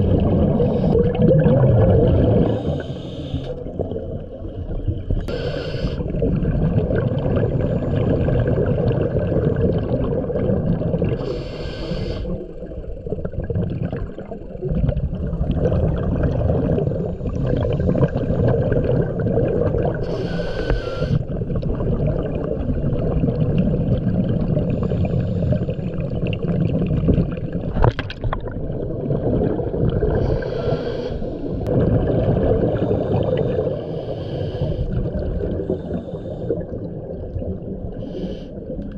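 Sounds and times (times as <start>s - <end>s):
rumbling exhaust bubbles: 0.0s - 2.8s, 6.0s - 11.2s, 12.7s - 20.0s, 31.5s - 33.8s
regulator inhalation hiss: 2.5s - 3.6s, 5.3s - 6.0s, 11.2s - 12.4s, 20.0s - 21.2s, 30.2s - 31.6s, 33.0s - 34.9s, 38.0s - 38.6s.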